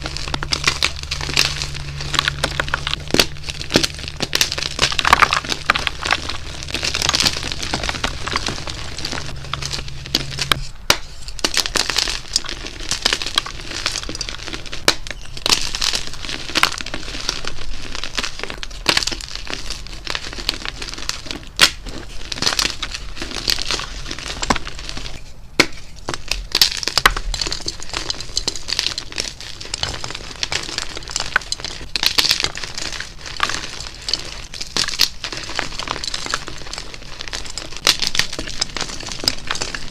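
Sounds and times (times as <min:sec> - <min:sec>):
low hum: 0:00.0 - 0:15.3
chalk crunching and crumbling: 0:00.0 - 0:39.9.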